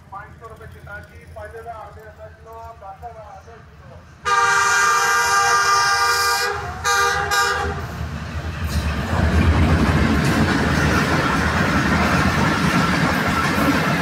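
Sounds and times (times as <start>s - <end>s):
train passing rumble: 0.0s - 14.0s
locomotive horn blasts: 4.2s - 7.9s.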